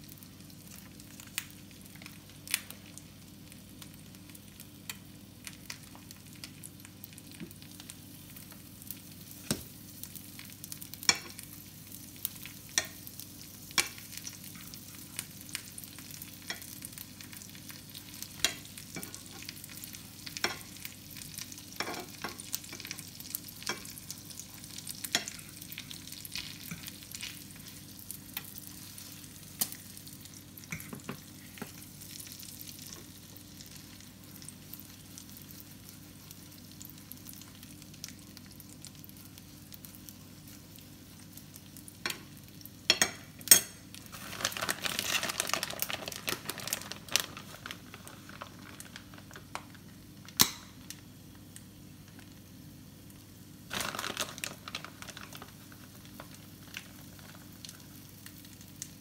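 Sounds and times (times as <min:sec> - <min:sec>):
meat sizzling in a frying pan: 0:00.0 - 0:59.0
plastic bag crinkling: 0:44.1 - 0:49.8, 0:53.7 - 0:57.4.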